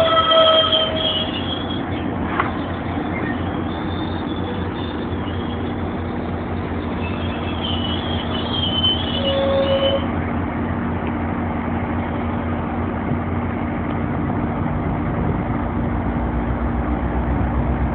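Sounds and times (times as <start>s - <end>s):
train wheel and brake squeals: 0.0s - 10.1s
train engines rumbling: 0.0s - 17.9s.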